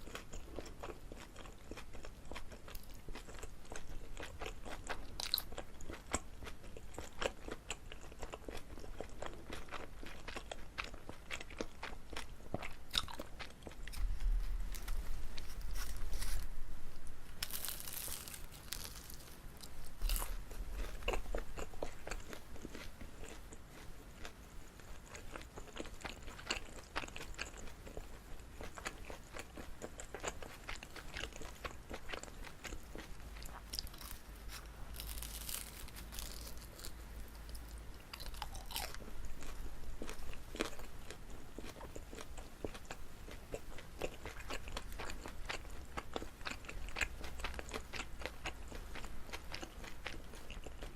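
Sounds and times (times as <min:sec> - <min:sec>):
crunching bites: 0:17.4 - 0:23.4, 0:31.2 - 0:40.9.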